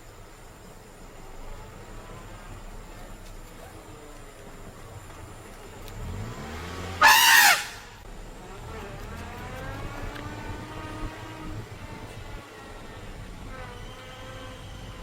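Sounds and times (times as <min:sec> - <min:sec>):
elephant trumpeting: 0:06.8 - 0:08.0.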